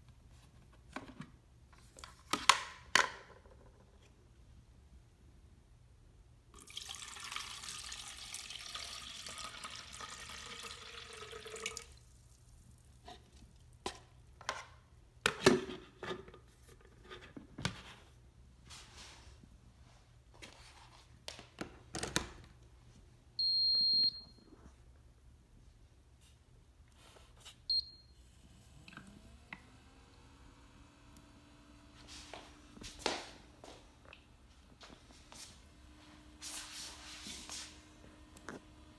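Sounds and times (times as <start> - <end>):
water running from a tap: 6.6 - 12.0.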